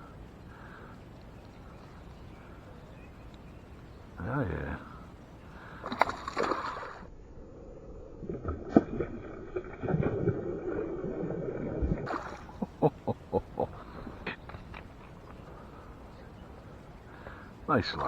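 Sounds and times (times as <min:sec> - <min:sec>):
water splashing: 0:05.5 - 0:07.1, 0:08.2 - 0:15.4.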